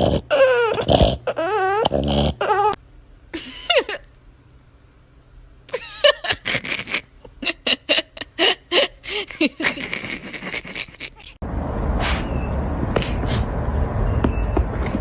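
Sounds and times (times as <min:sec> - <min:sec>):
person laughing: 0:03.3 - 0:04.1, 0:05.7 - 0:11.4.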